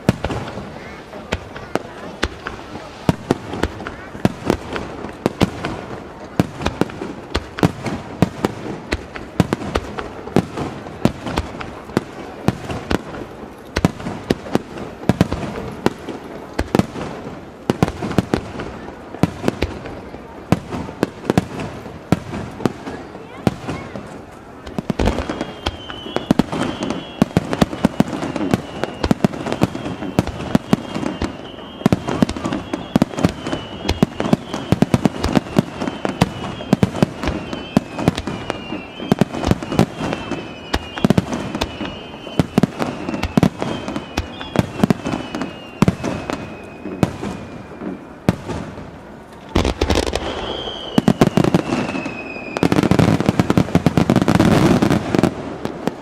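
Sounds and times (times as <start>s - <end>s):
fireworks bangs: 0.0s - 56.0s
fireworks whistles sliding down: 24.9s - 48.4s, 49.3s - 55.3s.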